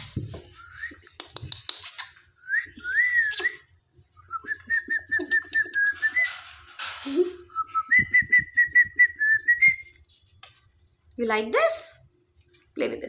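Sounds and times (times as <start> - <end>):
sharp clicks and taps: 1.0 - 2.0.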